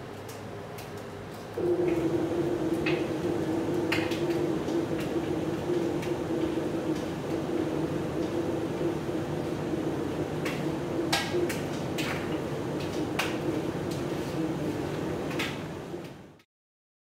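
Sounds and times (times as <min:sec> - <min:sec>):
electric motor humming: 0:01.6 - 0:14.6.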